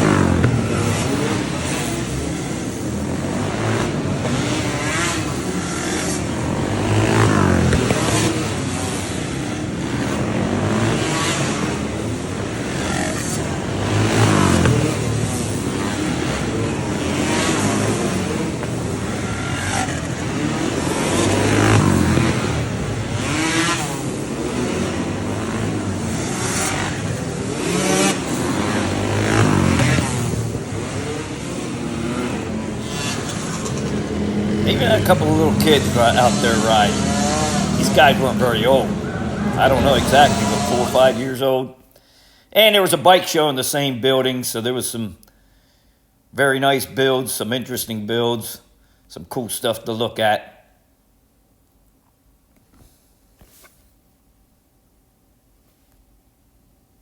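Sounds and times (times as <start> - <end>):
motorcycle engines revving: 0.0 - 41.6
motorcycle passing: 0.0 - 41.7.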